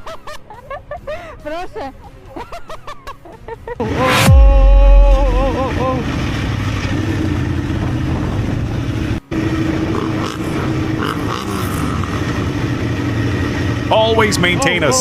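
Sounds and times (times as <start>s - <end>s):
motorcycle running: 3.8s - 15.0s
road and wind noise: 5.1s - 15.0s.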